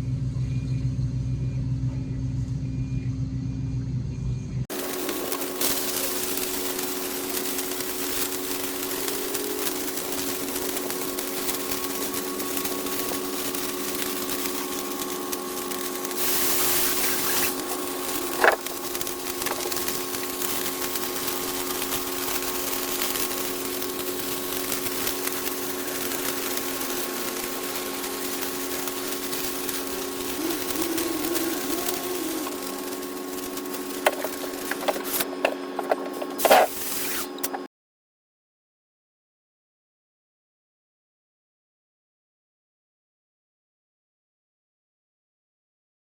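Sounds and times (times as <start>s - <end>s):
burst of hiss: 4.7s - 37.6s
welding arc crackling: 4.7s - 37.7s
welding machine hum: 4.7s - 37.7s.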